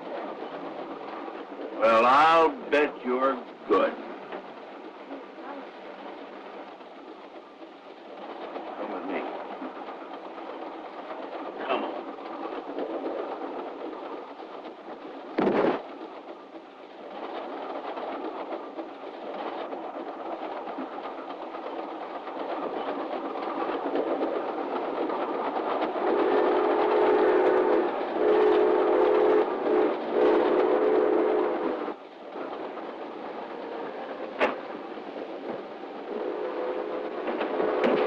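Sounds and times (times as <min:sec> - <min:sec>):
moving train running noise: 0:00.0 - 0:38.0.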